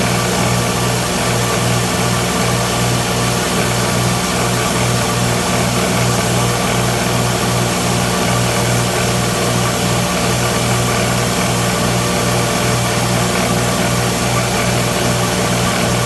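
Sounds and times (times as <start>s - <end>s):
electric belt grinder running: 0.0s - 16.0s.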